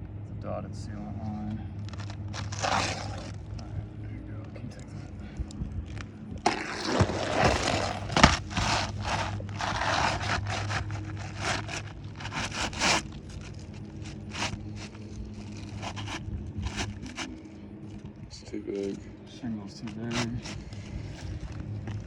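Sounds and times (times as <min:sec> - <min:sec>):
low steady hum: 0:00.0 - 0:22.0
shingle scraping on shingle: 0:01.9 - 0:03.5, 0:06.4 - 0:17.4, 0:19.7 - 0:22.0.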